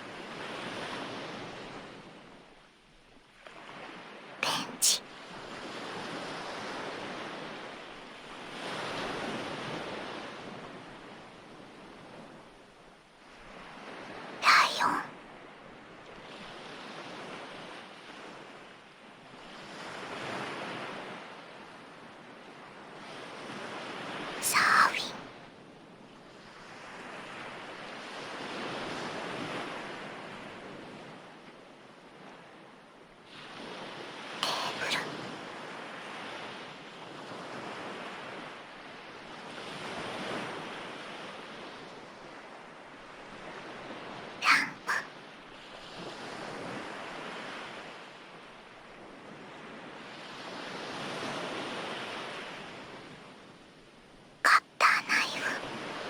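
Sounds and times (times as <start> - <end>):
ocean waves surf: 3.5 - 12.2, 33.3 - 53.2
person whispering: 4.4 - 5.0, 14.4 - 15.1, 24.4 - 25.2, 34.4 - 35.1, 44.4 - 45.1, 54.5 - 55.6.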